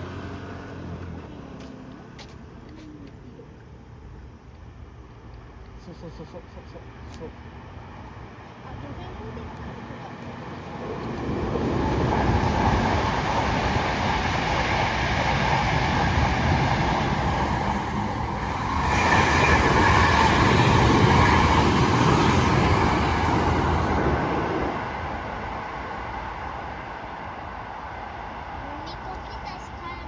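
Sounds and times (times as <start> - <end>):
train rumbling past: 6.7 - 30.0.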